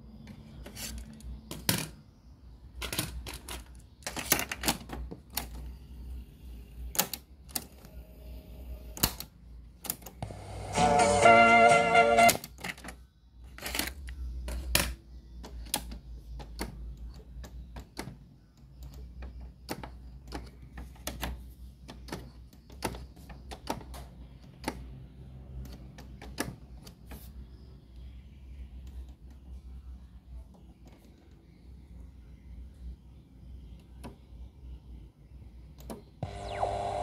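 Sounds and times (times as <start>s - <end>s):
low hum: 36.2s - 37.0s.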